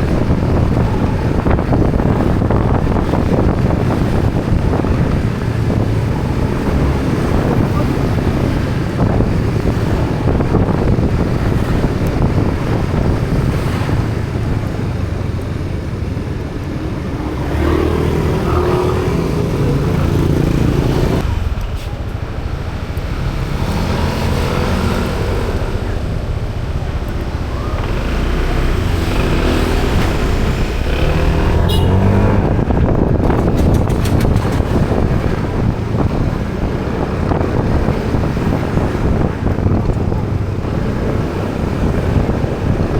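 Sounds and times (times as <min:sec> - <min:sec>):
wind buffeting microphone: 0:00.0 - 0:42.9
motorbike engine running: 0:25.9 - 0:42.9.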